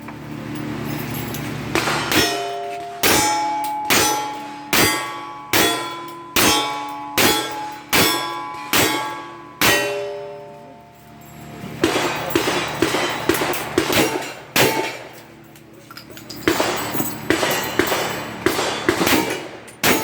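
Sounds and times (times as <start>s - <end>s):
bullets clanging on steel targets: 0.0s - 20.0s
gunshots: 1.7s - 3.2s, 11.8s - 15.1s, 16.4s - 20.0s.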